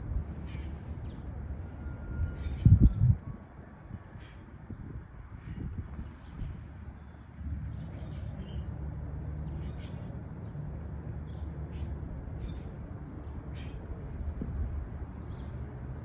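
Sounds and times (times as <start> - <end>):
wind buffeting microphone: 0.0 - 7.0, 13.4 - 16.0.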